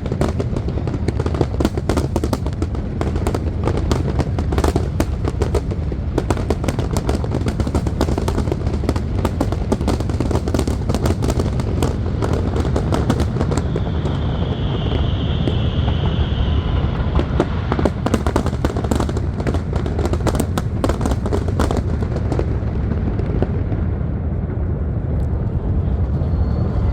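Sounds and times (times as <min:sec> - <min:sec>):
fireworks crackling and bangs: 0:00.0 - 0:25.4
low rumble: 0:02.4 - 0:26.9
high whistle: 0:13.2 - 0:18.7, 0:25.9 - 0:26.9.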